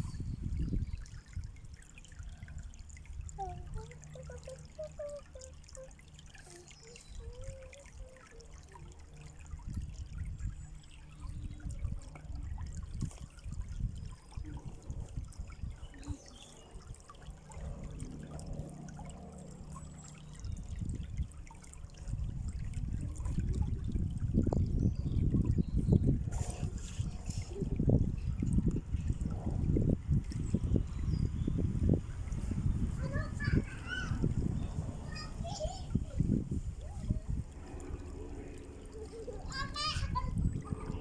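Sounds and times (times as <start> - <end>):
water trickling in a stream: 0.0 - 41.0
faint pitched sounds: 2.2 - 9.4, 36.8 - 41.0.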